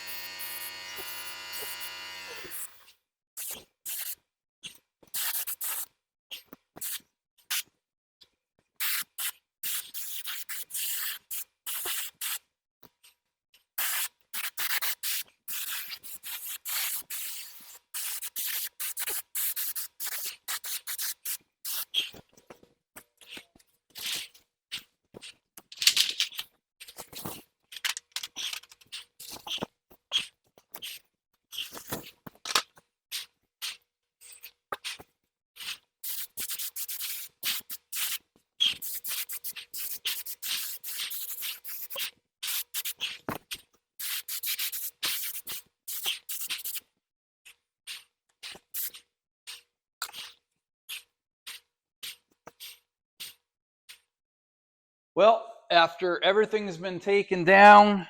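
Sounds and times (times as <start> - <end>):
paint sprayer hissing: 0.0 - 2.8, 13.8 - 21.8, 36.0 - 38.2, 38.8 - 43.1, 44.0 - 46.8.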